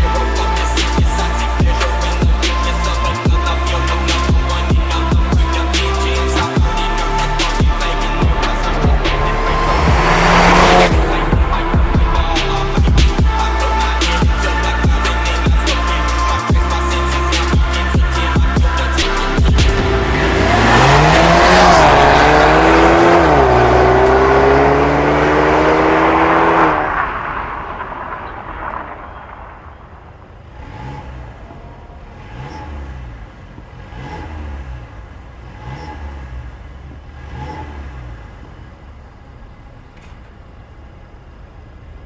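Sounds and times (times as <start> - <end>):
car engine revving: 0.0 - 40.1
muted throttle blips: 6.7 - 16.2, 17.1 - 38.6.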